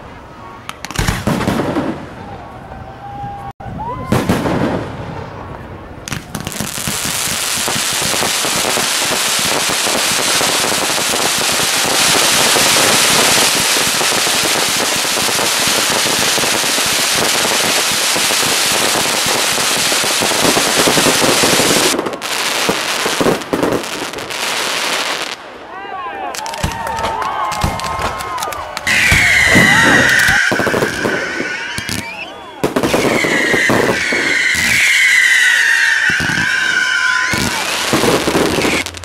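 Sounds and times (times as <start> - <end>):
fireworks crackling: 0.6 - 2.2, 4.1 - 25.6, 26.3 - 39.0
scattered pops: 26.4 - 35.3.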